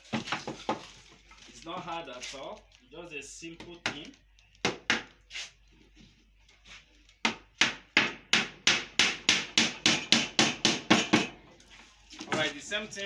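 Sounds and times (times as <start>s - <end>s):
hammer striking wooden boards: 7.2s - 11.4s.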